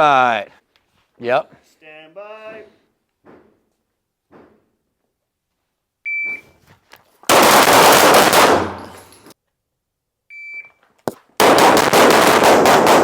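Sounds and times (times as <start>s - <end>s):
shot timer beep: 6.1s - 6.4s, 10.3s - 10.8s
rapid pistol shots: 7.3s - 9.0s, 11.4s - 13.0s.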